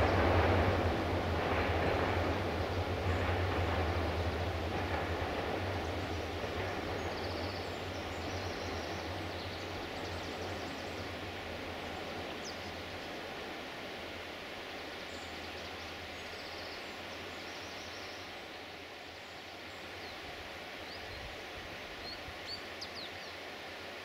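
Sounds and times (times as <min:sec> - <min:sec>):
diesel train rumble: 0:00.0 - 0:17.9
birds chirping: 0:04.9 - 0:13.3.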